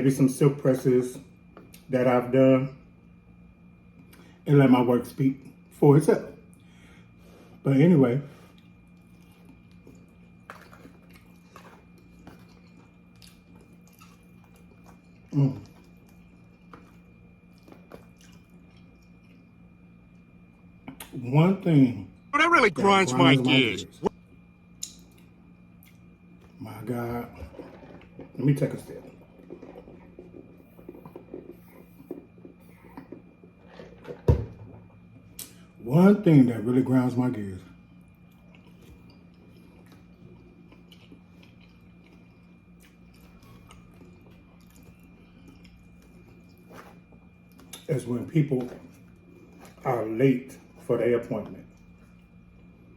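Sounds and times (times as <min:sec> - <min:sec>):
faint chewing: 0:08.3 - 0:21.2, 0:38.1 - 0:47.9.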